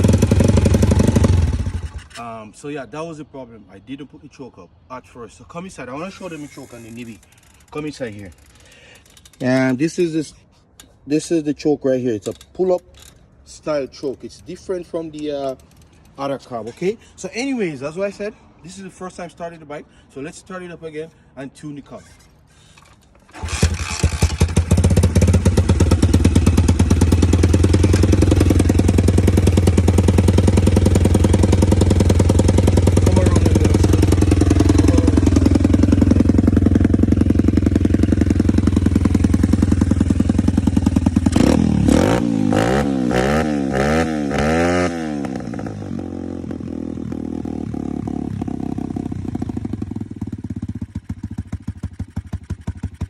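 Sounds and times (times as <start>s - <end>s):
motorcycle engine running: 0.0s - 2.1s, 23.3s - 53.0s.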